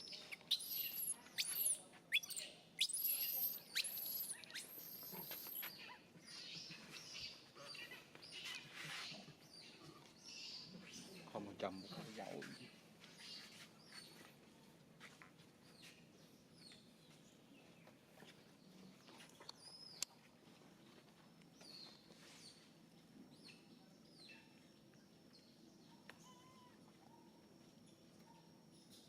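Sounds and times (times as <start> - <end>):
baby monkey squeaking cries: 0.5 - 5.6.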